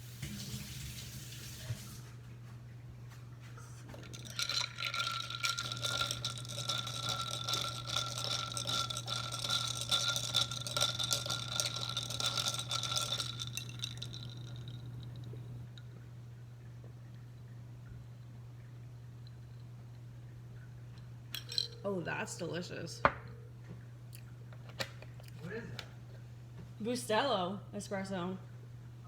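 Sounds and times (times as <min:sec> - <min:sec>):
water running from tap: 0:00.0 - 0:02.1.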